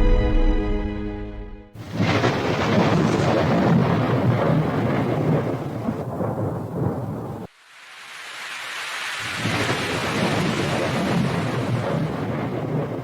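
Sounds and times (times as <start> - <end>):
held musical chord: 0.0 - 1.8
thunder rumbling: 1.8 - 7.5, 9.2 - 13.0
rain: 1.8 - 13.0.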